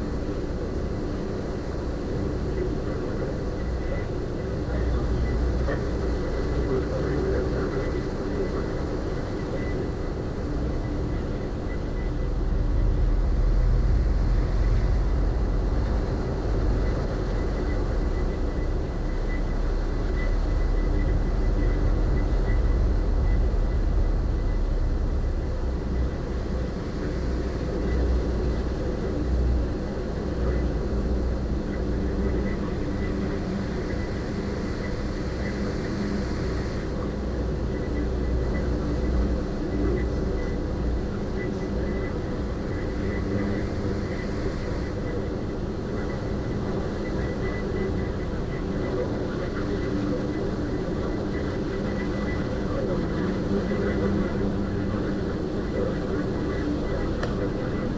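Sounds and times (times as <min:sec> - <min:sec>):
ferry engines droning: 0:09.8 - 0:57.9.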